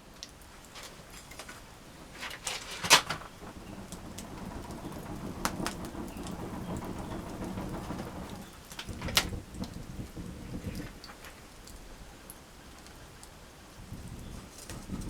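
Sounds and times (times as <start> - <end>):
campfire crackling: 0.2 - 11.8.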